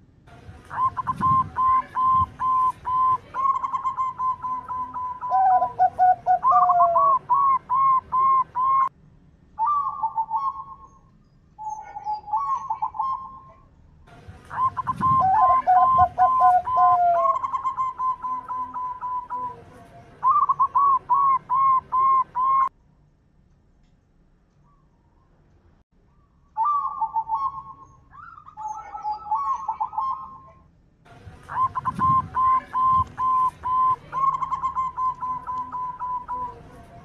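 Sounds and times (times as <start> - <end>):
doves cooing: 0.5 - 8.9, 11.6 - 13.7, 14.3 - 22.7, 26.6 - 30.6, 31.3 - 37.0.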